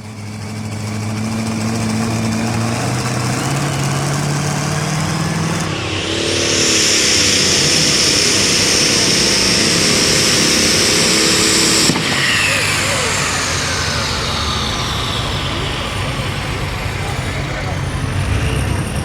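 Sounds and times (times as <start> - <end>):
tractor engine revving: 0.0 - 19.0
turbo whine: 0.0 - 19.0.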